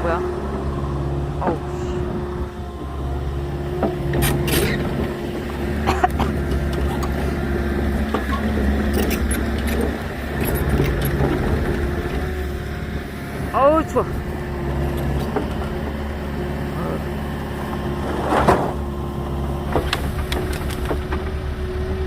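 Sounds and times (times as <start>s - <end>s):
diesel engine running: 0.0s - 22.0s
sharp knocks and clanks: 19.6s - 21.4s.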